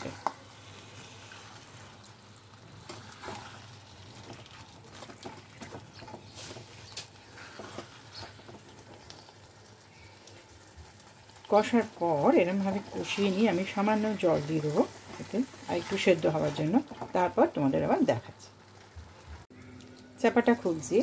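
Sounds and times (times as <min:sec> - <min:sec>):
chicken sizzling and bubbling: 0:00.0 - 0:21.0
spatula scraping and tapping pan: 0:04.2 - 0:09.3.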